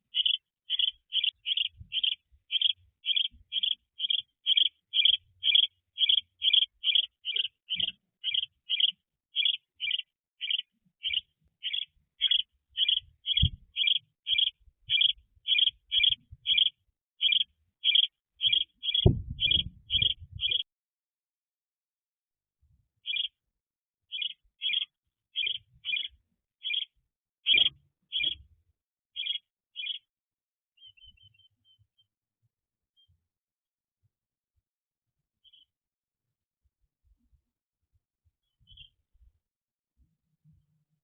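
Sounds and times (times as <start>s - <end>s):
soft low thump: 19.0s - 19.8s.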